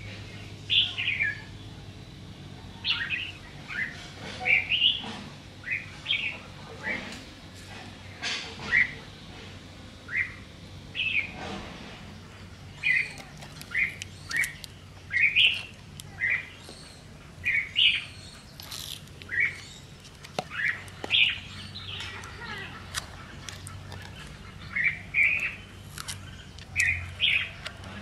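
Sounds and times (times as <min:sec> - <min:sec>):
small birds chirping: 0:00.0 - 0:07.0, 0:08.0 - 0:11.4, 0:12.1 - 0:28.0
sharp clicks: 0:13.1 - 0:14.8.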